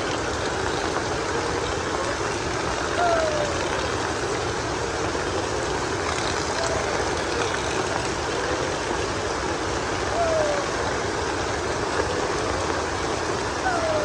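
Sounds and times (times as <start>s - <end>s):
heavy rain falling: 0.0s - 14.0s
short high voice: 13.6s - 14.0s.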